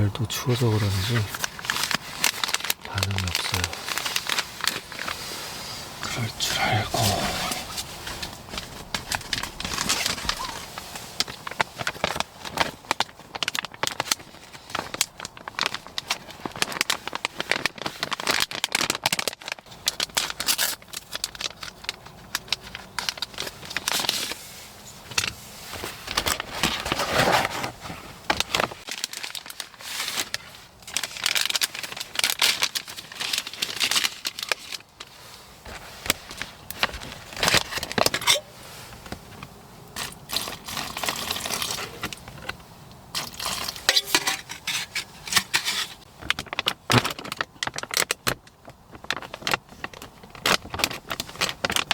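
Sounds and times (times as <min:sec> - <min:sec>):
packaging crinkling and tearing: 0:00.5 - 0:24.4, 0:25.1 - 0:51.9
clicks and rustles: 0:25.1 - 0:51.9.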